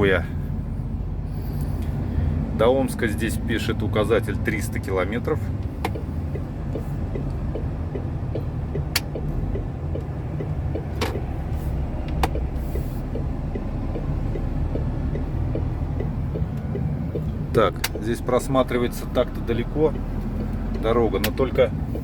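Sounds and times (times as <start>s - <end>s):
diesel truck engine running: 0.0s - 22.0s
road noise: 0.0s - 22.0s
sharp clicks: 5.8s - 11.3s, 12.0s - 18.2s.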